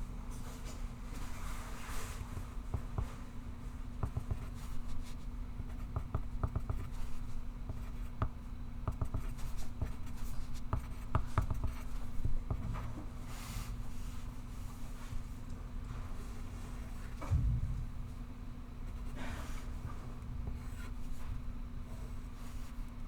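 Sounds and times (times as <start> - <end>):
steady low hum: 0.0 - 23.0
pencil writing on paper: 4.0 - 12.7.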